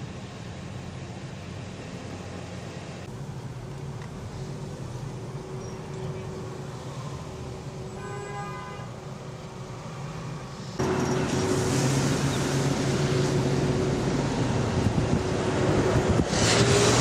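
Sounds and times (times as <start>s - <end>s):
road and wind noise: 0.0s - 17.0s
car engine hum: 8.9s - 17.0s.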